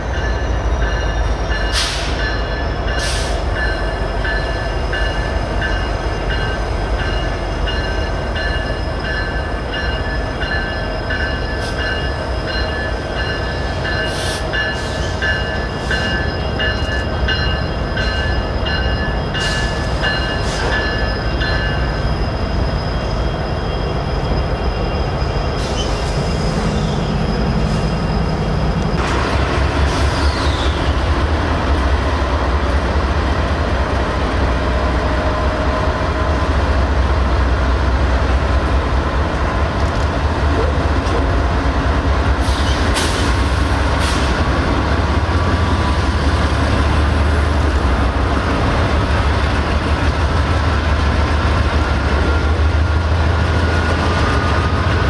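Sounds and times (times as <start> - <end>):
freight train deep rumble: 0.0 - 55.0.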